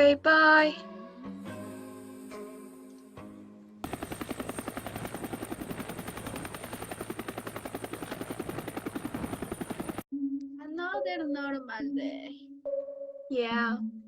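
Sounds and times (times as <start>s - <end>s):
helicopter rotor chopping: 3.8s - 10.0s.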